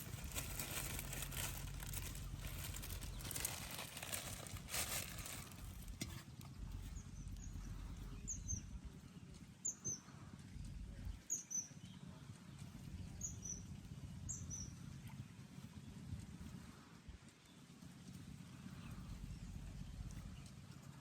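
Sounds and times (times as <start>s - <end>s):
low steady rumble: 0.0s - 21.0s.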